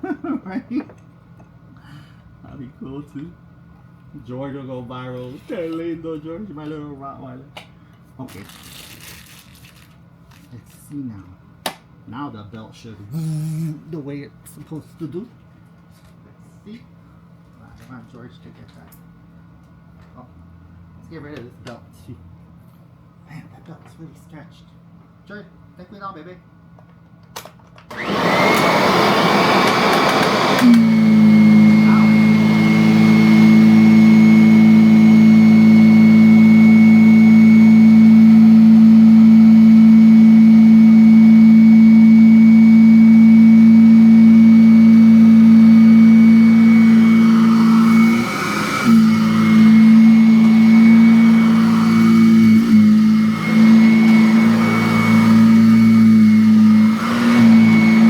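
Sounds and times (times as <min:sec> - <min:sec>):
vacuum cleaner motor droning: 0:13.1 - 0:13.8, 0:27.9 - 0:58.0.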